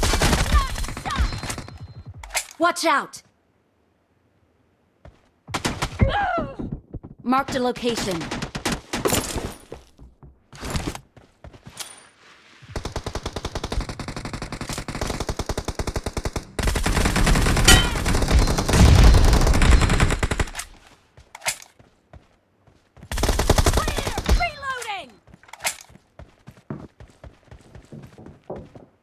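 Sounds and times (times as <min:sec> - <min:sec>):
video game automatic gunfire: 0:12.8 - 0:20.6.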